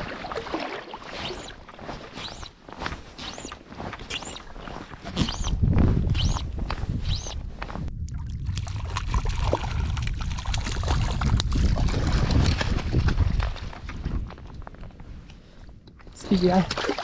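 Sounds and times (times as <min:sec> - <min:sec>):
water sloshing and splashing: 0:00.0 - 0:05.3, 0:08.0 - 0:14.6, 0:16.1 - 0:17.0.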